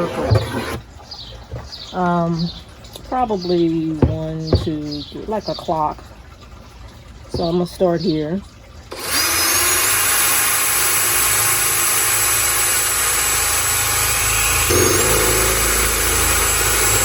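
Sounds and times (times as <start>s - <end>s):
power drill boring through planter: 8.9s - 17.0s.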